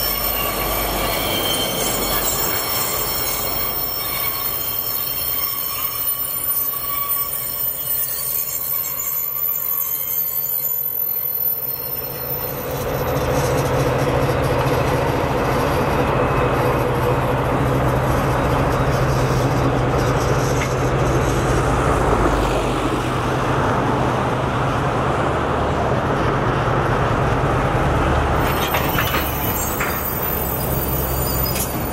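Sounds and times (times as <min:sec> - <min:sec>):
rumble of rolling train cars: 0:00.0 - 0:31.9
locomotive engine hum: 0:11.9 - 0:31.9.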